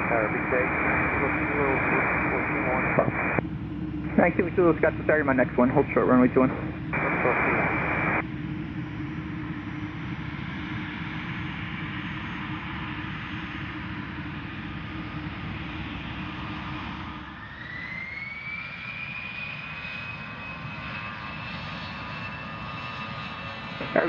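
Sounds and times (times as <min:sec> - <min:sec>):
high turbine whine: 0:00.0 - 0:18.8, 0:23.8 - 0:24.0
jet engine roar: 0:00.0 - 0:24.0.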